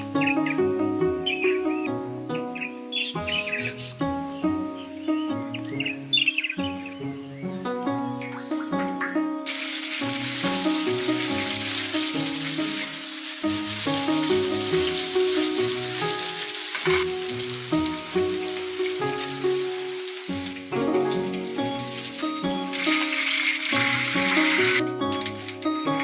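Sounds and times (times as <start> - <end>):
melodic background music: 0.0 - 26.0
food sizzling in hot oil: 9.5 - 26.0.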